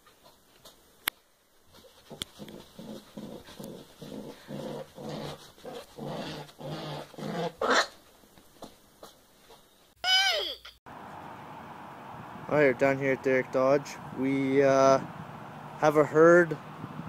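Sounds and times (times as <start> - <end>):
rabbit growling: 1.9 - 7.9.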